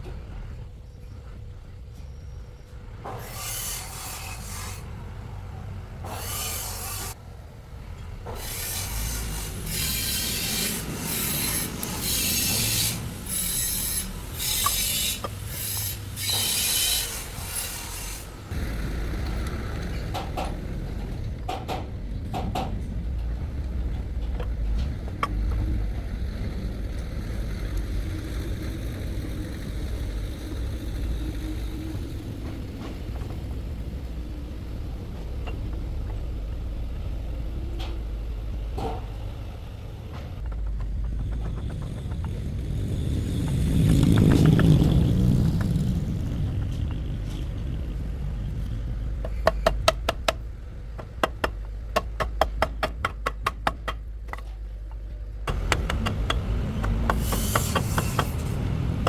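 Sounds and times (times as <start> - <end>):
hand tool rasping on workpiece: 8.4 - 18.2, 51.0 - 54.5, 55.5 - 59.0
steady low rumble: 18.4 - 59.0.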